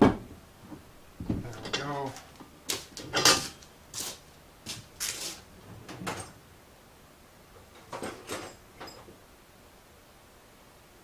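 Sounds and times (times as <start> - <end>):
tools scraping and clattering: 1.5 - 4.2, 7.8 - 9.1.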